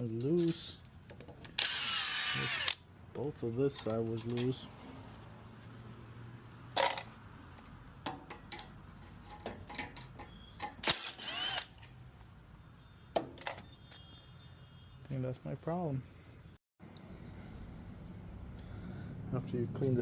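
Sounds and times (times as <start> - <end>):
metal parts and tools clinking: 0.0 - 5.6, 6.7 - 15.2
ringing metal scrape: 4.4 - 5.4, 12.2 - 16.5.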